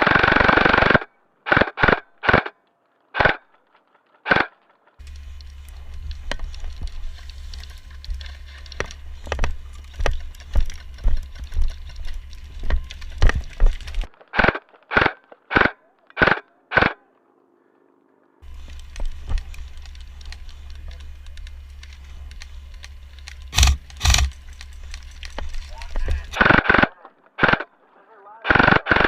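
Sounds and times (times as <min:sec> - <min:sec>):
low wind: 0:00.0 - 0:29.0
handling rumble: 0:04.7 - 0:14.2, 0:18.4 - 0:26.4.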